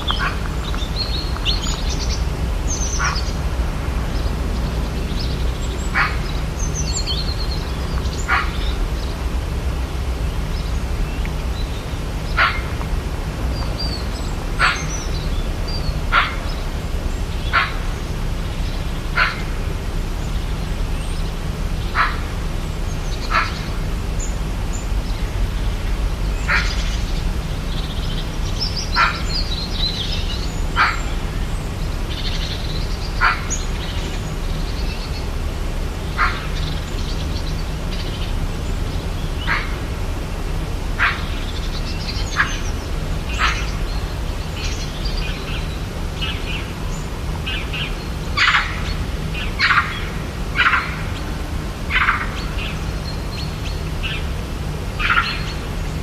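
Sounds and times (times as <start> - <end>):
steady low rumble: 0.0 - 56.0
sharp animal calls: 2.8 - 3.4, 5.9 - 7.0, 8.2 - 8.8, 12.3 - 12.8, 14.6 - 15.2, 16.0 - 16.6, 17.5 - 18.0, 19.2 - 19.6, 21.9 - 22.4, 23.3 - 23.8, 30.7 - 31.2, 33.1 - 33.8, 36.1 - 36.9, 40.9 - 41.6, 47.7 - 51.2.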